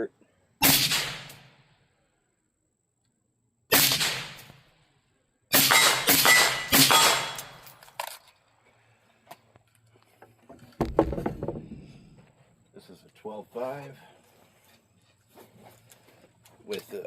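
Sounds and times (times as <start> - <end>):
suppressed rifle shots: 0.6 - 1.6, 3.7 - 4.7, 5.5 - 7.7.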